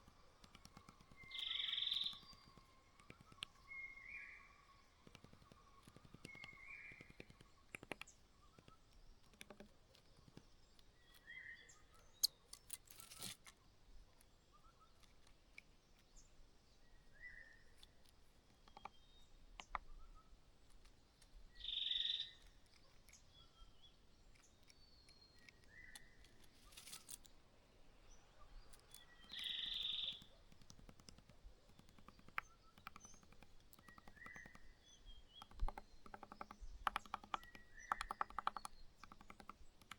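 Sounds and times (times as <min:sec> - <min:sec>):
faint clicks and scratches: 0:00.0 - 0:04.0, 0:04.6 - 0:16.5, 0:17.6 - 0:21.4, 0:22.3 - 0:27.4, 0:28.4 - 0:39.9
small birds chirping: 0:00.0 - 0:39.9
higher bird calls: 0:01.1 - 0:02.6, 0:28.9 - 0:30.5.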